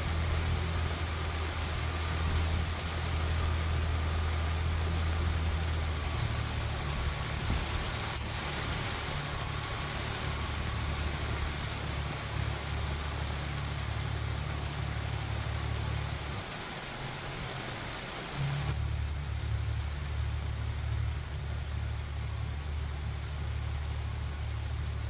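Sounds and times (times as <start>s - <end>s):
low rumble: 0.0s - 16.5s
steady rain falling: 0.0s - 25.0s.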